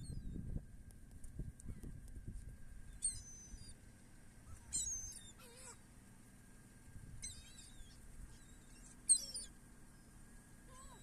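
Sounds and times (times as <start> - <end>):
seagulls calling: 2.9 - 3.8, 4.4 - 5.8, 7.2 - 11.0.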